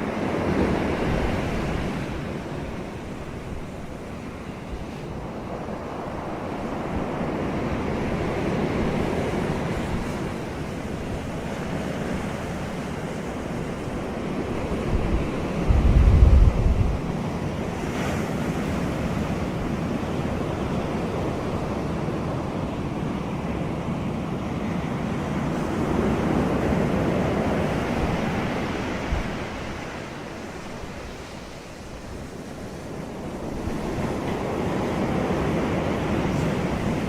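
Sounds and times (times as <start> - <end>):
ocean surf breaking on beach: 0.0 - 37.0.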